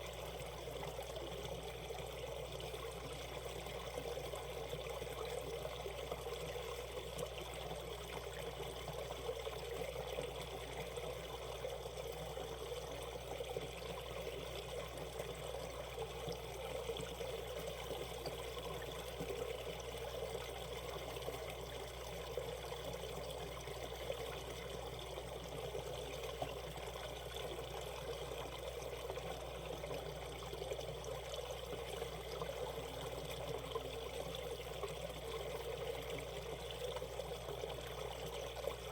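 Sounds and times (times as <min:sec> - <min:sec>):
stream water over rocks: 0:00.0 - 0:38.9.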